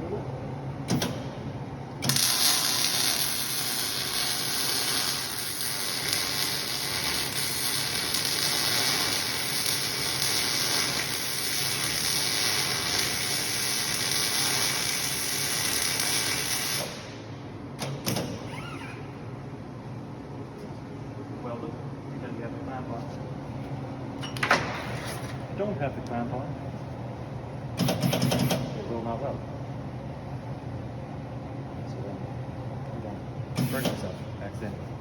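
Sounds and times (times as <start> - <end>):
welding arc crackling and hissing: 2.0 - 17.2.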